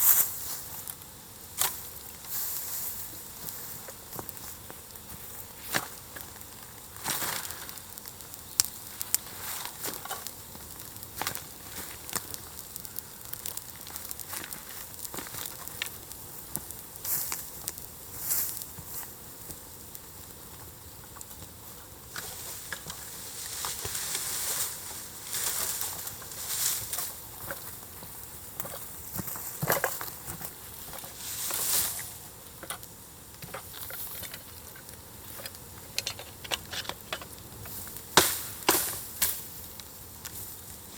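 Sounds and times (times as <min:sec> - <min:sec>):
fire hissing: 0:00.0 - 0:40.9
wood fire crackling and popping: 0:00.0 - 0:40.9.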